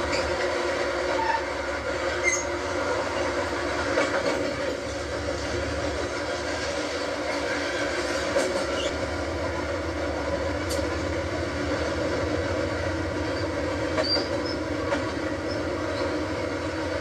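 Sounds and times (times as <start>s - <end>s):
high wheel squeaks: 0.0s - 0.4s, 1.1s - 2.6s, 8.5s - 9.0s, 13.2s - 16.4s
train rumbling along track: 0.0s - 17.0s.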